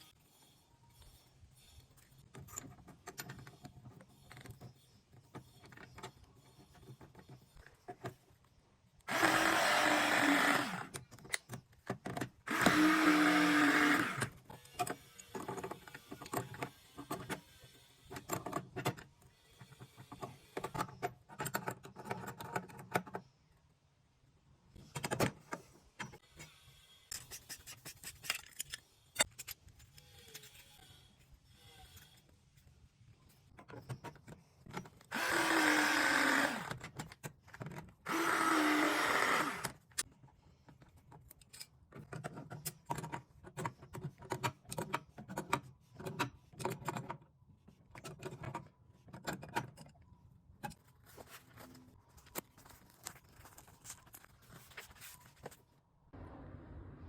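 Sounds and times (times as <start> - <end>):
power drill running: 9.1 - 10.9, 12.5 - 14.7, 35.1 - 36.8, 38.1 - 39.8
tools clicking and knocking: 18.1 - 23.4, 27.1 - 30.5, 40.7 - 50.9.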